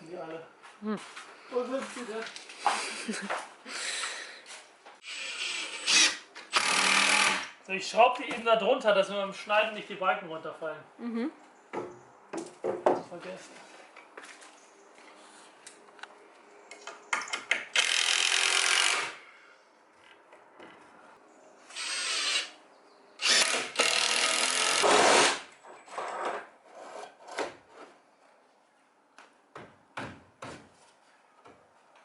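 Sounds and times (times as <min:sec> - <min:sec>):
power drill driving screws: 0:05.0 - 0:07.6, 0:17.7 - 0:19.2, 0:21.7 - 0:22.5, 0:23.2 - 0:26.2.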